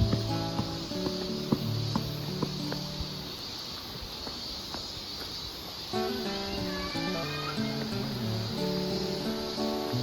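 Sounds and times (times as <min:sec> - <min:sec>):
plucked acoustic guitar: 0:00.0 - 0:03.4, 0:06.0 - 0:10.0
steady high hiss: 0:00.0 - 0:10.0.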